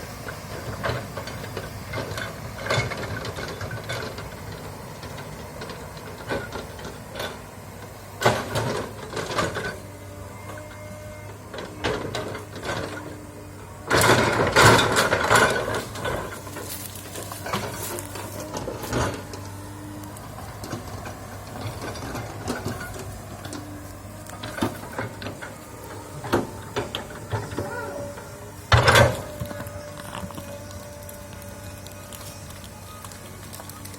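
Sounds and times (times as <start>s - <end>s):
excavator engine hum: 0.0s - 33.9s.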